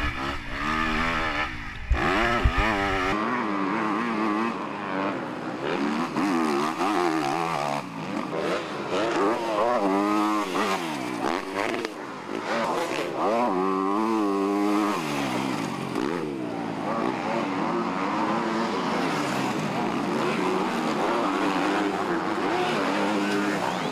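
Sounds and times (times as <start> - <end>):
motocross bike engines revving: 0.0 - 23.9.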